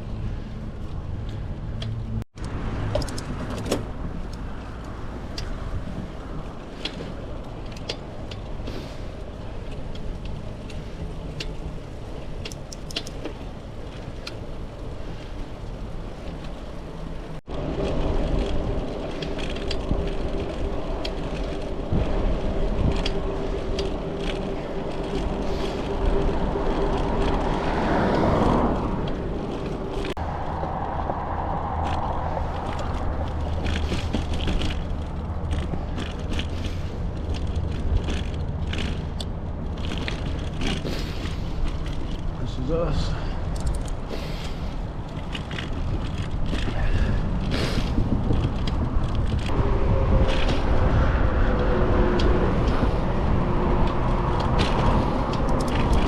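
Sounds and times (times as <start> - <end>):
bicycle tyres rolling on pavement: 0.0 - 56.0
loud rumble with steady hum: 14.8 - 56.0
wind on microphone: 43.3 - 56.0.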